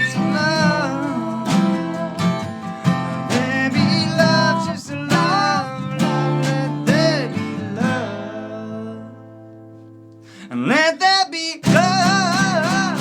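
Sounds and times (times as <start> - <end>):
person singing: 0.0 - 9.4, 10.4 - 13.0
strummed acoustic guitar: 0.0 - 13.0.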